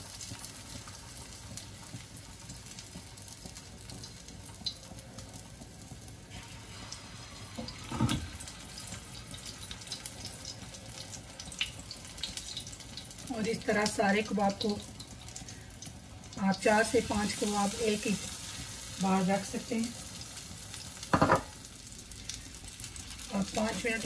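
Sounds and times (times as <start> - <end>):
kebabs sizzling in oil: 0.0 - 24.0.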